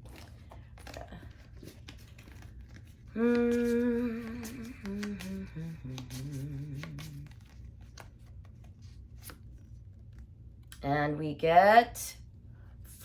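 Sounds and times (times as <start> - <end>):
person humming: 3.1 - 7.6.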